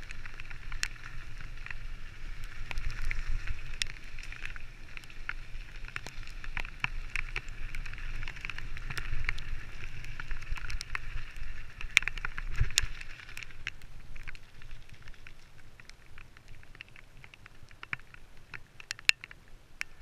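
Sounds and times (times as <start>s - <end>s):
bike tyre and trail noise: 0.0s - 20.0s
wind rumbling on microphone: 0.0s - 20.0s.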